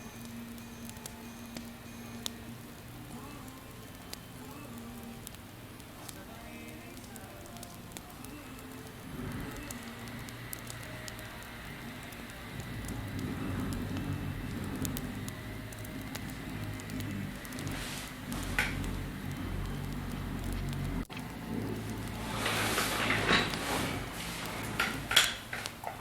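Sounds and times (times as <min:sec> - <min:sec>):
wood fire crackling: 0:00.0 - 0:26.0
low rumble: 0:09.1 - 0:25.2.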